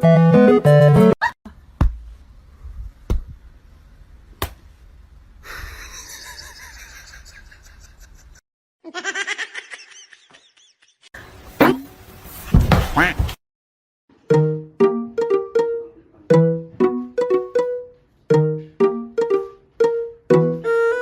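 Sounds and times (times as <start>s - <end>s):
person laughing: 5.5s - 11.1s.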